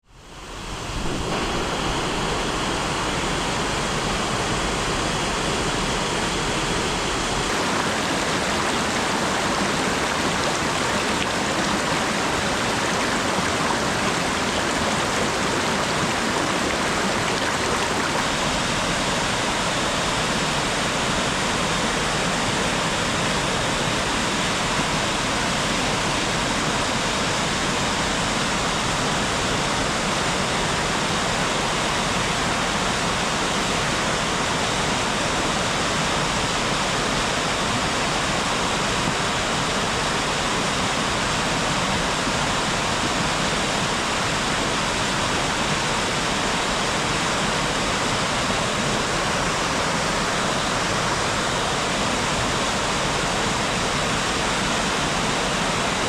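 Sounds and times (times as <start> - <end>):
steady rain falling: 7.5 - 18.3.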